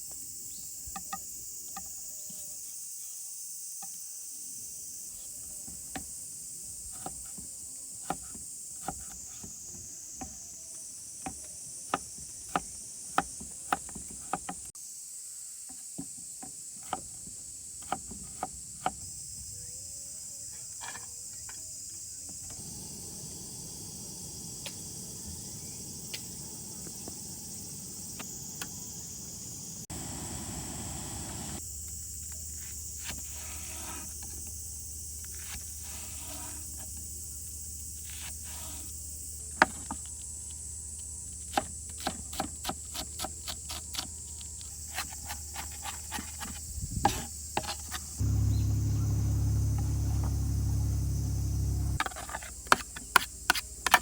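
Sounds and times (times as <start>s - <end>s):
insect chirring: 19.0s - 30.6s, 31.4s - 54.0s.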